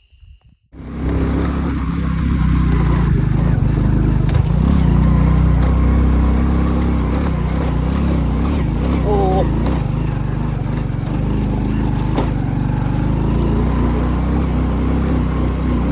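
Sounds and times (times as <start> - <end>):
motorcycle engine running: 0.8 - 15.9.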